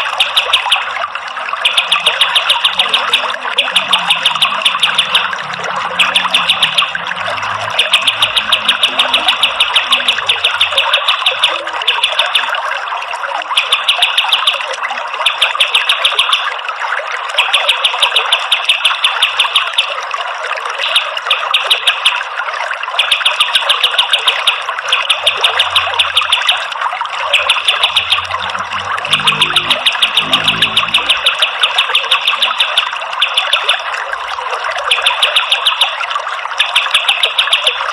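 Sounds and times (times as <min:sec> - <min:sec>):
running water: 0:00.0 - 0:37.9
songbird singing rapid high notes: 0:01.6 - 0:12.5, 0:25.2 - 0:32.7.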